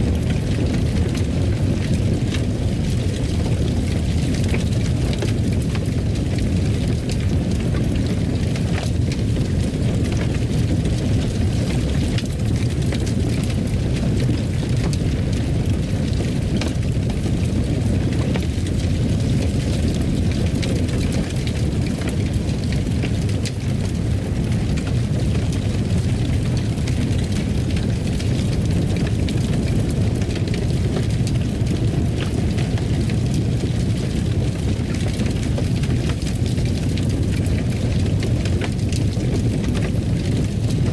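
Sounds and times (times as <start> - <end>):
fireplace fire burning: 0.0 - 40.9.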